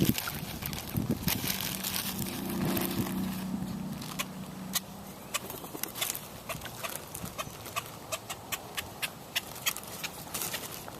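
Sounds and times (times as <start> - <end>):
birds clicking: 2.2 - 10.7.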